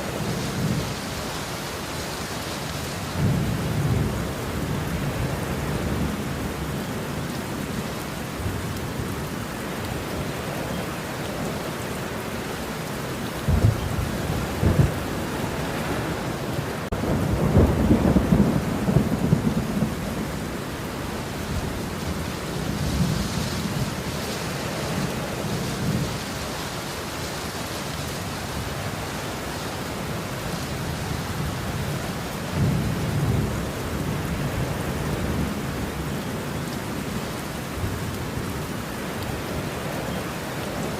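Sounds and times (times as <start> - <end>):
heavy rain: 0.0 - 40.9
thunder claps and rumbles: 3.2 - 6.7, 13.5 - 20.6, 30.8 - 37.0.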